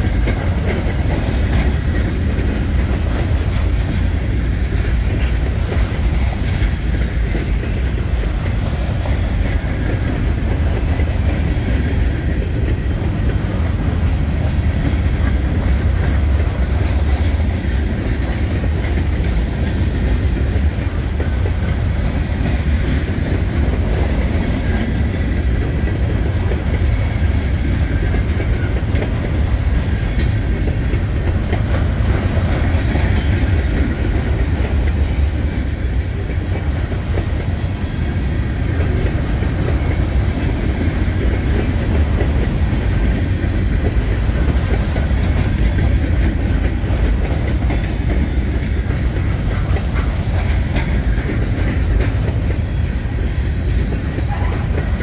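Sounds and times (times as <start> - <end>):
freight train rumble: 0.0 - 55.0
wheels clacking over rail joints: 0.0 - 55.0.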